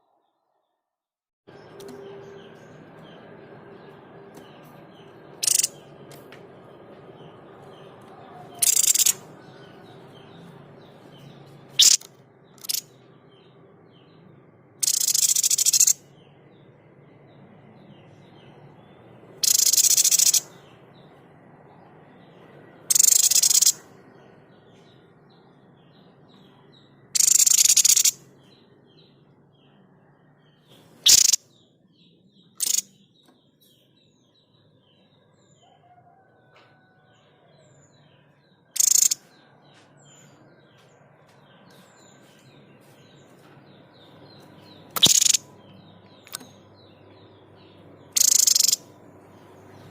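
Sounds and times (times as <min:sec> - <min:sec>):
faint twittering of small birds: 0:01.5 - 0:49.9
babbler harsh shot calls: 0:31.1 - 0:31.4.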